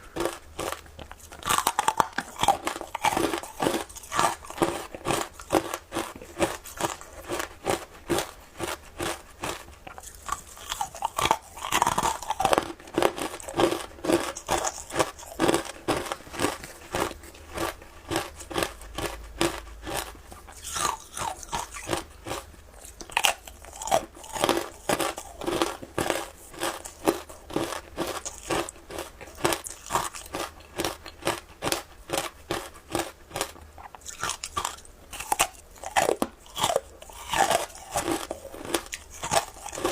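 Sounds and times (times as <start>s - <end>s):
person chewing crunchy ice: 0.0s - 39.9s.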